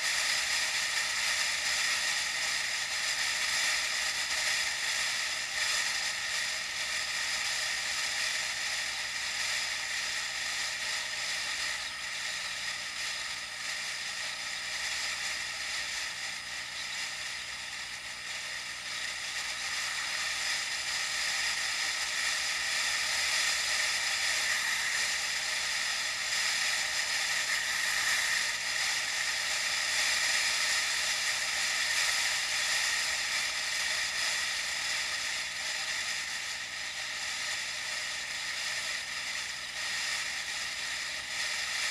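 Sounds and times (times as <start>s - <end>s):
bicycle tyre and drivetrain whirr: 9.0s - 41.9s.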